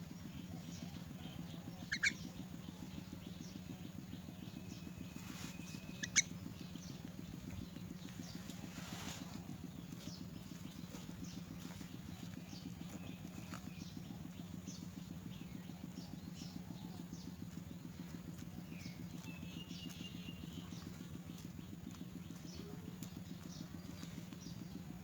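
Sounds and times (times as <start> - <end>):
low pulsing hum: 0.0 - 25.0
young myna chirping: 1.9 - 2.3, 5.7 - 6.4.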